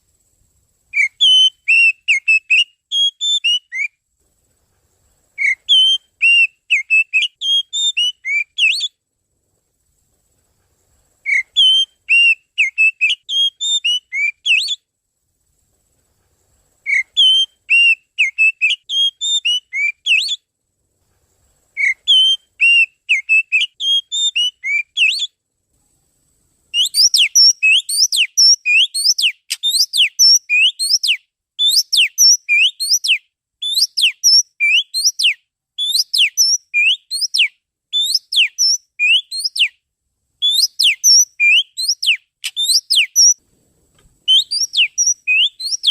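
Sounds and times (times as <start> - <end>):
bird whistled song: 0.9 - 4.0, 5.4 - 9.0, 11.2 - 14.9, 16.8 - 20.5, 21.8 - 25.4, 26.7 - 39.8, 40.4 - 43.4, 44.2 - 45.9.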